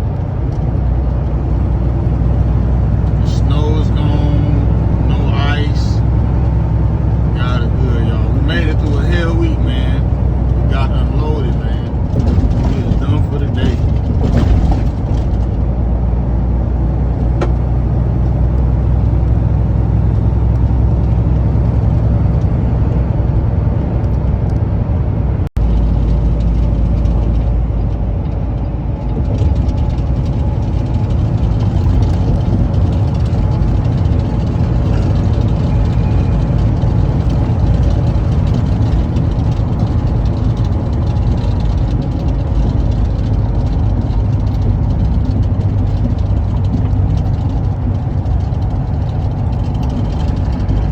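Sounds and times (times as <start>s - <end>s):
vehicle engine and road rumble: 0.0s - 50.9s.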